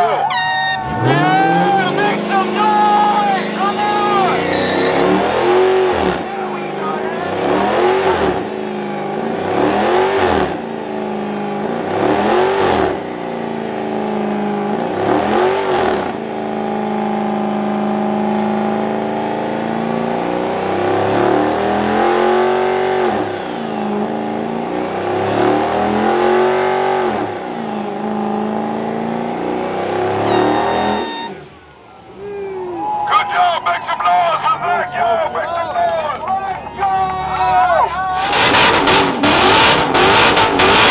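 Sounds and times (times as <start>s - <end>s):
car engine revving hard: 0.8s - 31.5s, 38.1s - 40.9s.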